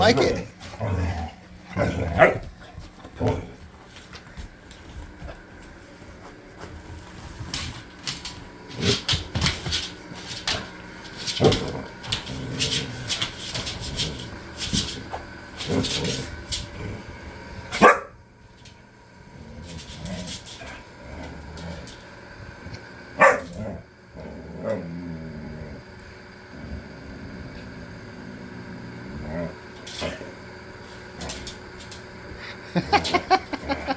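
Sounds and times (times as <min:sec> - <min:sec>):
dog barking: 0:17.8 - 0:18.2, 0:23.2 - 0:23.5.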